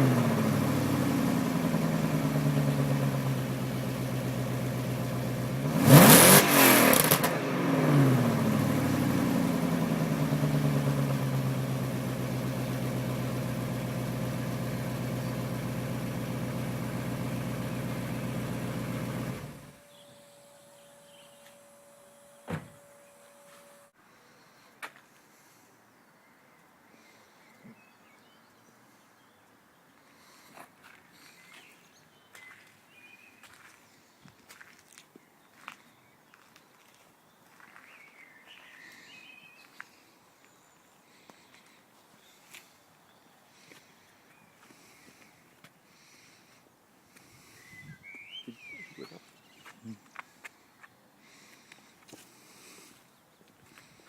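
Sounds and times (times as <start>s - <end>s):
car engine revving and idling: 0.0s - 24.0s.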